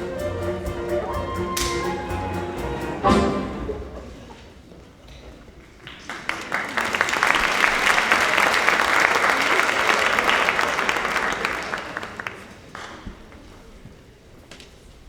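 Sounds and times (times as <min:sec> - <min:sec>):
orchestra final chord: 0:00.0 - 0:04.1
audience applause: 0:05.7 - 0:13.2.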